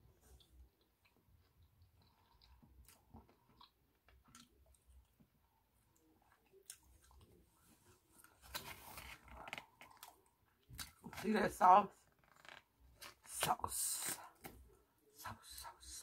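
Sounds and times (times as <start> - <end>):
person chewing: 0.2 - 5.2, 5.8 - 7.5, 8.2 - 11.1.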